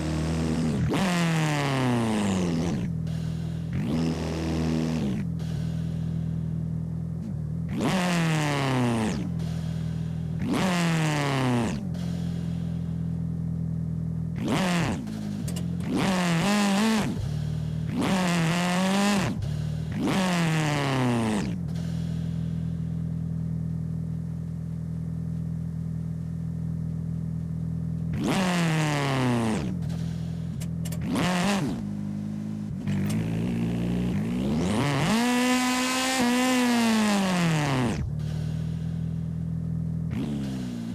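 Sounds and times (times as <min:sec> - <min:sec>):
video game car engine revving: 0:00.0 - 0:23.8, 0:28.0 - 0:40.9.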